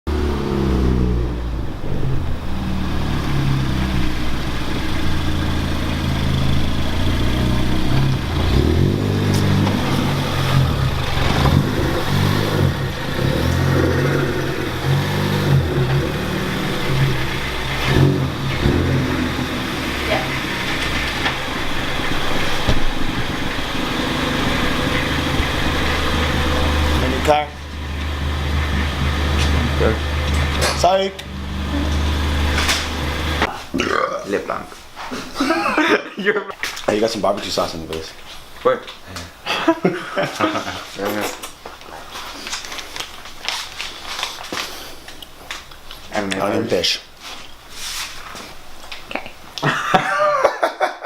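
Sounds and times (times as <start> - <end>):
car engine revving: 0.0 - 33.5.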